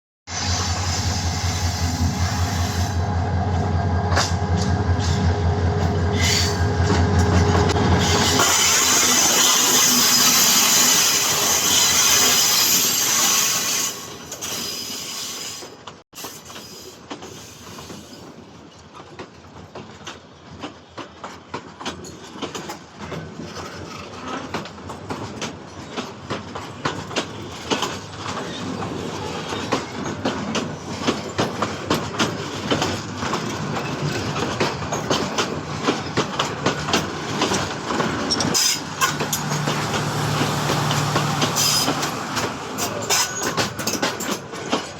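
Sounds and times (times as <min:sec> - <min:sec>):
train wheels clattering over rails: 0:01.6 - 0:14.7, 0:15.6 - 0:44.9
loud even rushing noise: 0:38.8 - 0:43.0.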